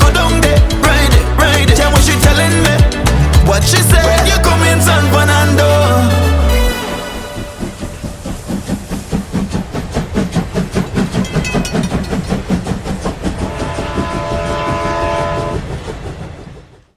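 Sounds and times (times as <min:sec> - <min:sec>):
train horn: 0:05.6 - 0:08.1, 0:13.4 - 0:15.8
train wheels clattering: 0:06.9 - 0:16.9.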